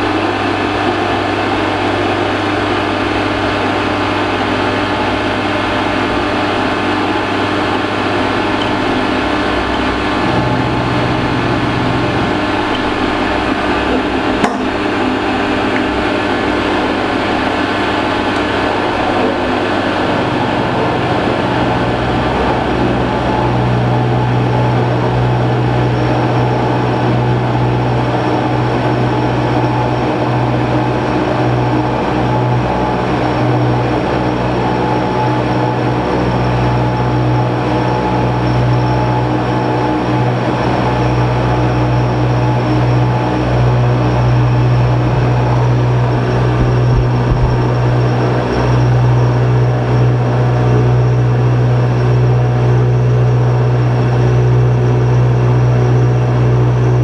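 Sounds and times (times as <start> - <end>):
machine tool motor humming: 44.5 - 48.6.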